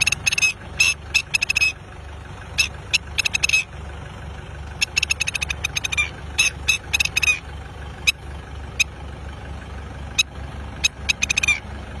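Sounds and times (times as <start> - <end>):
bird alarm calls: 0.0 - 1.8, 2.5 - 3.7, 4.7 - 9.0, 10.1 - 11.7
engine idling: 0.0 - 12.0.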